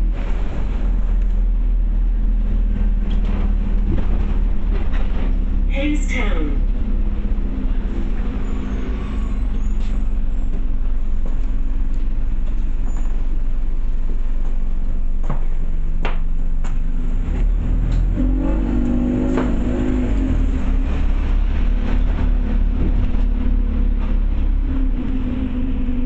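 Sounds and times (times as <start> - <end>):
bus diesel engine humming: 0.0 - 26.0.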